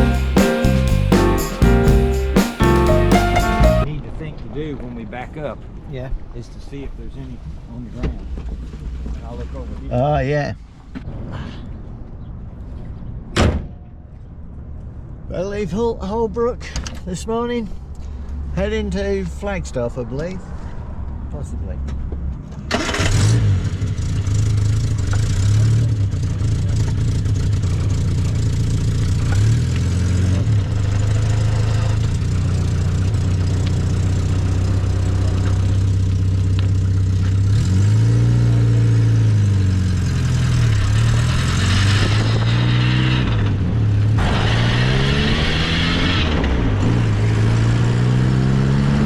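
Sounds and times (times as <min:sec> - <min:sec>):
road noise: 0:00.0 - 0:03.9, 0:17.7 - 0:49.0
car engine revving: 0:37.4 - 0:49.0.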